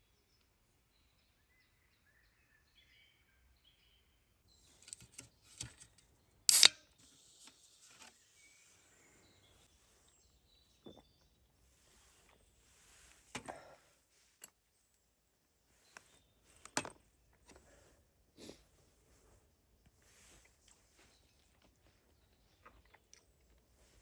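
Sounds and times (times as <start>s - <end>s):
faint bird chirps: 0.0s - 6.4s, 7.7s - 12.8s.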